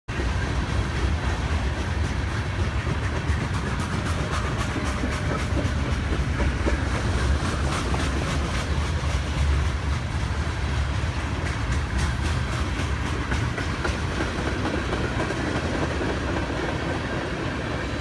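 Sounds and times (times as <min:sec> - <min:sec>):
train engine and wheels rumbling: 0:00.1 - 0:18.0
clicking from the rails: 0:01.0 - 0:10.3, 0:11.0 - 0:17.2.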